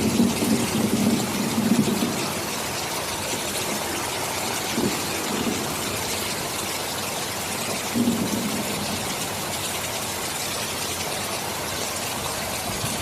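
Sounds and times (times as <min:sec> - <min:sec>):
distant thunder rumble: 0:00.0 - 0:09.8
heavy rain: 0:00.0 - 0:13.0.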